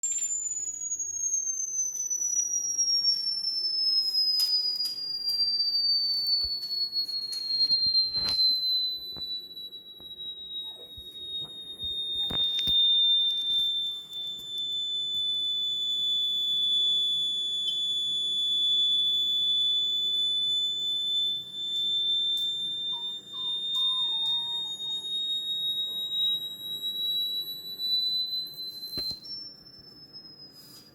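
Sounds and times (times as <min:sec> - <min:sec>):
high-pitched electronic tone: 0:22.9 - 0:25.0.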